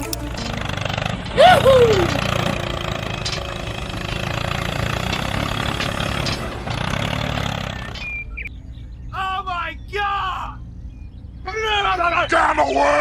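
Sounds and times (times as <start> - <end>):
small engine running: 0.0 - 8.1.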